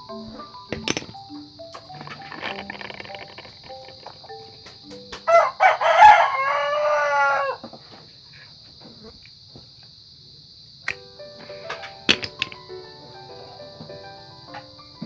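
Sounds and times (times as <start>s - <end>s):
rooster crowing: 5.2s - 7.8s.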